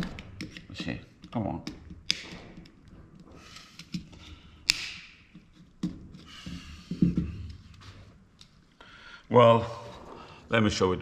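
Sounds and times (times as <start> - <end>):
small clicks and knocks: 0.0 - 6.3.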